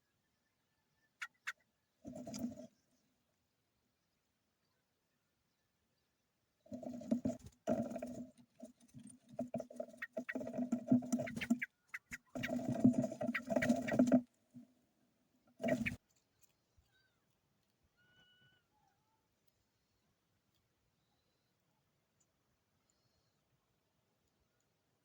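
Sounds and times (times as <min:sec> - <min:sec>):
birds moving and calling: 0:01.0 - 0:03.2, 0:06.6 - 0:14.8, 0:15.4 - 0:19.7.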